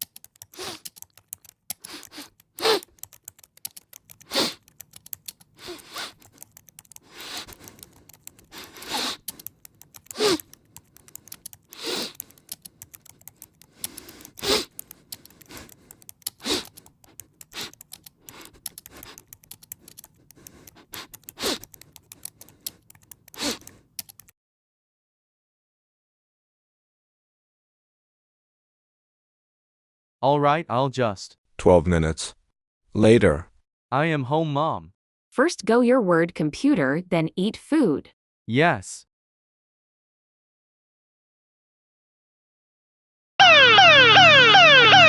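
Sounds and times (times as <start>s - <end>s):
typing on computer keyboard: 0.0s - 24.3s.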